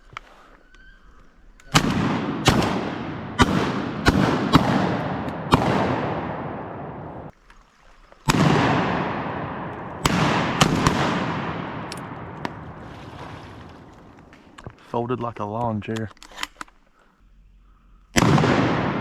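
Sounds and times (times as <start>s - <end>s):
shotgun shots echoing: 1.7s - 7.3s, 8.3s - 12.9s, 18.2s - 19.0s.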